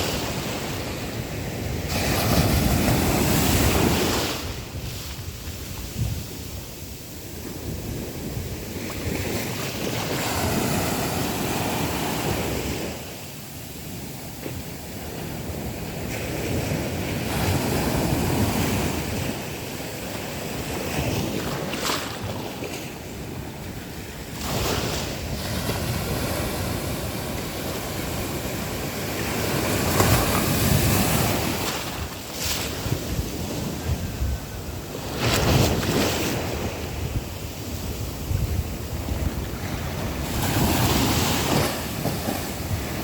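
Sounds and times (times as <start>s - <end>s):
sea waves breaking on beach: 0.0s - 43.0s
wind buffeting microphone: 0.0s - 43.0s.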